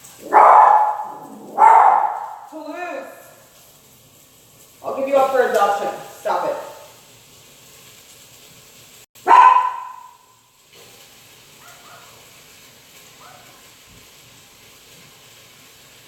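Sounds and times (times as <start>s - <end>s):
dog barking loudly: 0.2s - 2.6s, 6.4s - 6.9s, 9.2s - 10.3s, 11.6s - 12.2s, 13.2s - 13.6s.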